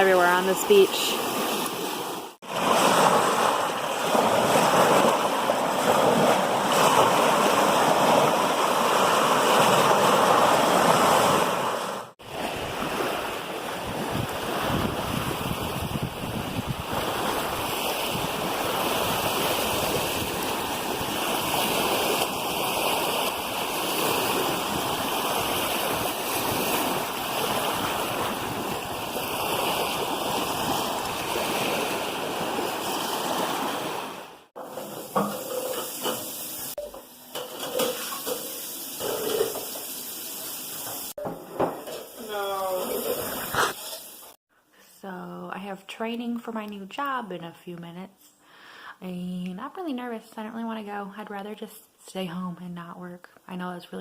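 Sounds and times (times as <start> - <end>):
waves washing onto shore: 0.0 - 34.5
wind on microphone: 13.7 - 32.6.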